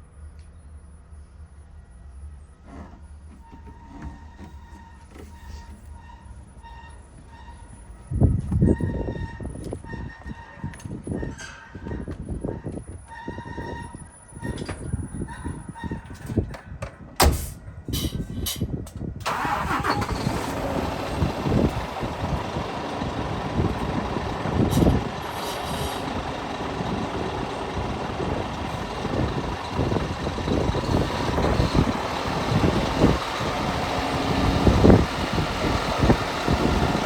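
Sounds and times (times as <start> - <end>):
diesel truck engine idling: 19.2 - 37.0.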